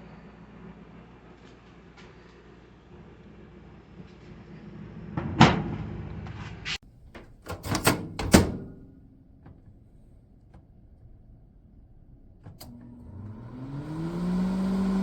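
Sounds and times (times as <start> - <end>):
microwave door latch clicks: 7.1 - 9.0.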